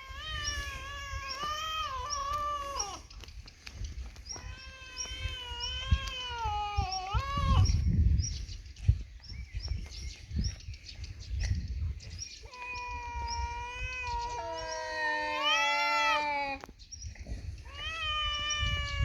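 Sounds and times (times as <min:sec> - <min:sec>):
cats yowling: 0:00.0 - 0:03.1, 0:04.3 - 0:07.8, 0:12.4 - 0:16.7, 0:17.6 - 0:19.0.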